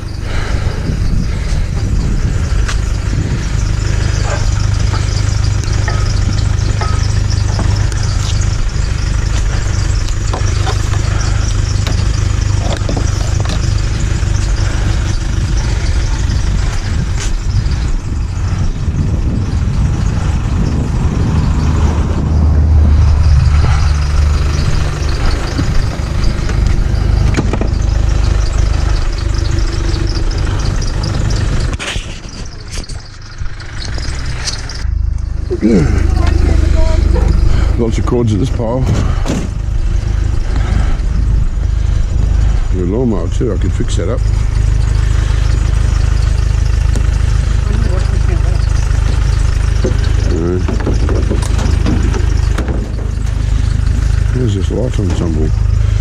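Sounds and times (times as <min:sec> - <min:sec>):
vehicle engine and road rumble: 0:00.0 - 0:56.0
small rattles and knocks: 0:02.7 - 0:18.0, 0:23.3 - 0:35.2, 0:44.2 - 0:56.0.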